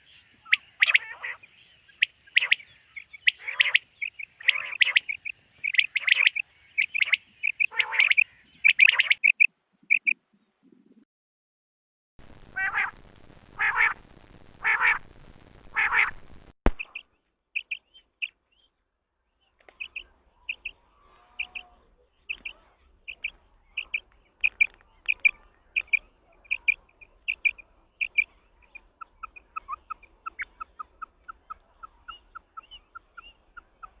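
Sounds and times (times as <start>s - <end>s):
quail calling: 0.0s - 10.2s, 12.5s - 13.0s, 13.6s - 14.0s, 14.6s - 15.0s, 15.7s - 16.2s, 19.8s - 34.0s
background hiss: 12.2s - 16.6s.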